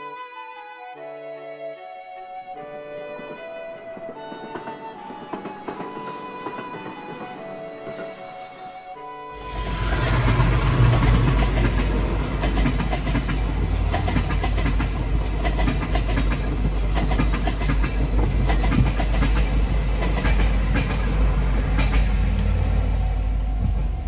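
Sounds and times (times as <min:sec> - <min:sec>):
train low rumble: 0:09.4 - 0:24.0
wheels clacking over rail joints: 0:09.6 - 0:22.7.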